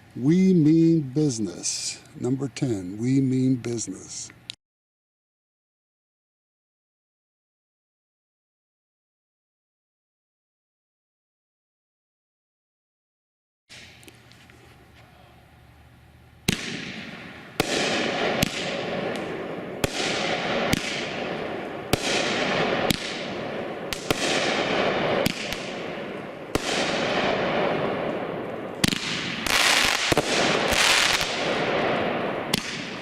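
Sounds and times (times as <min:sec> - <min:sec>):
firework crackle: 0:16.5 - 0:33.0
fireworks cake firing: 0:16.5 - 0:33.0.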